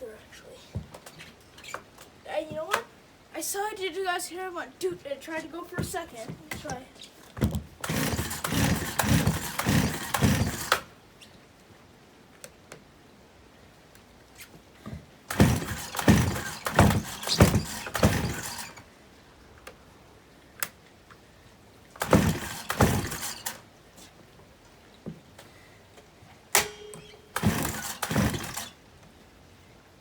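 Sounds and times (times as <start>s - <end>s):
chainsaw engine cranking: 7.8s - 10.9s, 15.3s - 18.9s, 22.0s - 23.6s, 26.6s - 28.8s.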